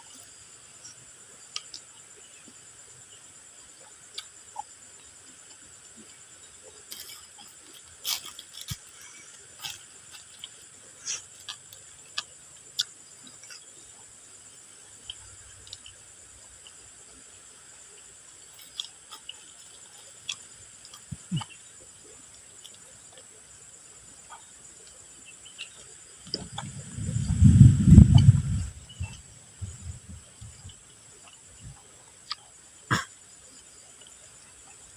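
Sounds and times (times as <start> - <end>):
crunchy chewing: 3.8 - 34.9
steady high hiss: 23.4 - 34.9
low rumbling: 26.3 - 30.7.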